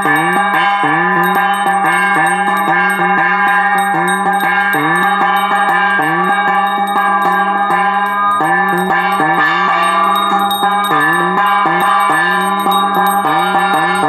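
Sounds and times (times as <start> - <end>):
bells ringing rapidly: 0.0 - 14.0
music: 0.0 - 14.0.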